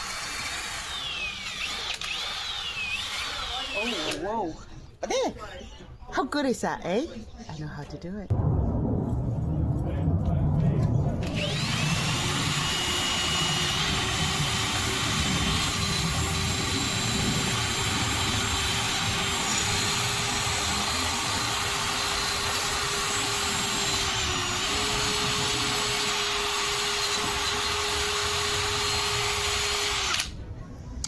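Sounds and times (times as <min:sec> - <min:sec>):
cordless drill whine: 0:00.0 - 0:04.2, 0:11.2 - 0:30.3.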